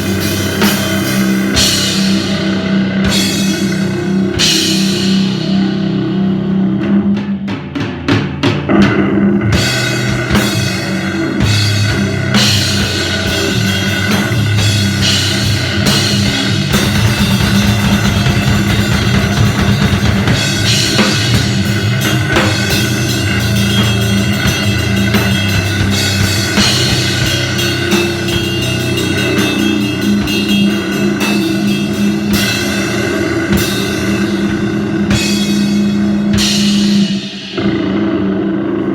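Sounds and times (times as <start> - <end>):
droning electric guitar: 0.0 - 7.3, 8.7 - 38.9
pounding drums: 0.0 - 38.6
distorted punk band playing: 0.0 - 38.9
crashing cymbals: 9.6 - 38.4.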